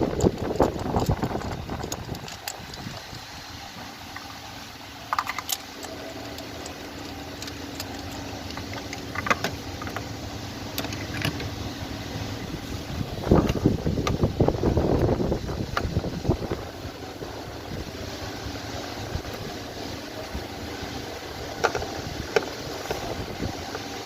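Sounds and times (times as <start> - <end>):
wind on microphone: 0.0 - 3.9, 12.1 - 24.0.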